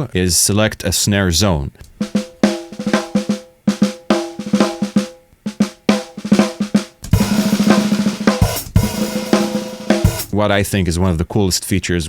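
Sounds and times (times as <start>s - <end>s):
snare drum strokes and roll: 2.0s - 10.4s.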